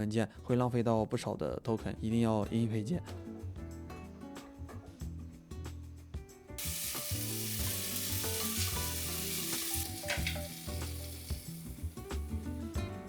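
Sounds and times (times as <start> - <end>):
background music: 0.0 - 13.0
food sizzling in a frying pan: 6.6 - 12.8.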